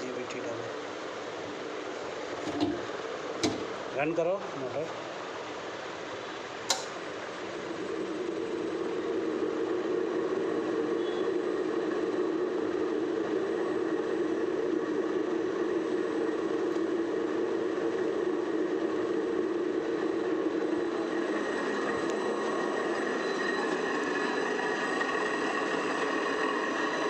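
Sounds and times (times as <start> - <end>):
electric pump motor running: 2.3 - 3.9.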